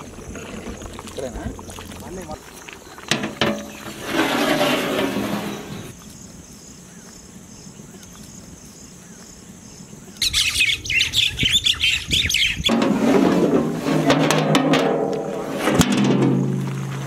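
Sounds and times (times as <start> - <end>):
faint bird chirps: 5.5 - 12.7.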